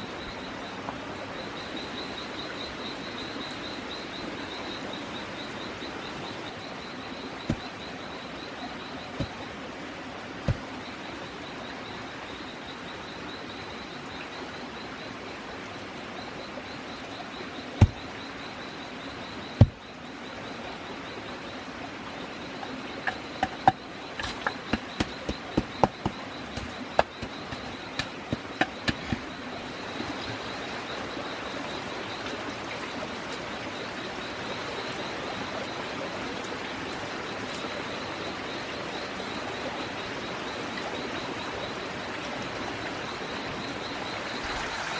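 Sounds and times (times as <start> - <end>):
sharp knocks and clicks: 23.0 - 29.3.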